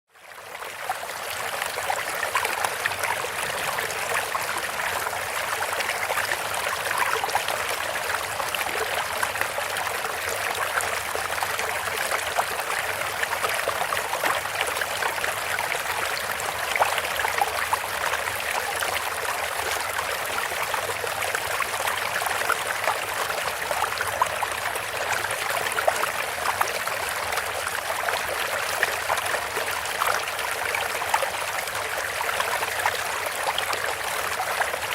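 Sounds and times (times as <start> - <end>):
water trickling and splashing: 0.3 - 34.9.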